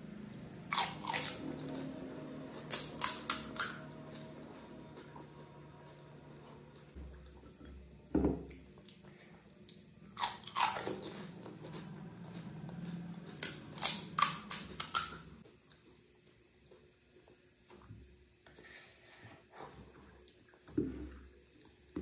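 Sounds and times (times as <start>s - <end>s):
crisp shells crunching while chewed: 0.7s - 1.5s, 9.7s - 11.1s.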